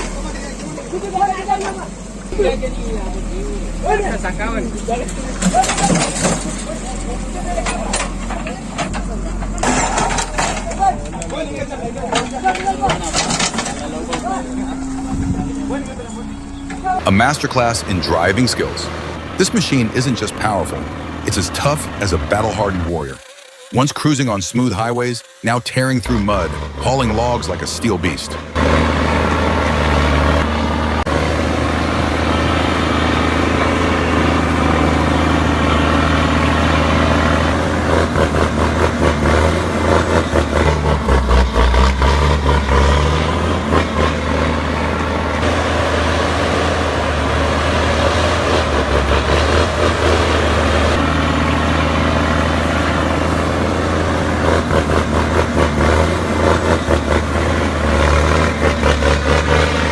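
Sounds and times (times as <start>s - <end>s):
truck engine under load: 0.0s - 59.9s.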